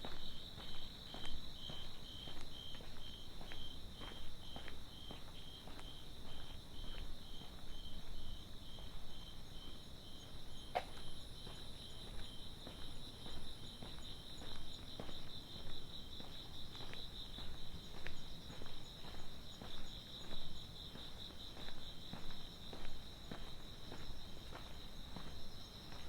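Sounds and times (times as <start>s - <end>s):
night insects chirping: 0.0s - 26.0s
soft footsteps on pavement: 0.0s - 26.0s.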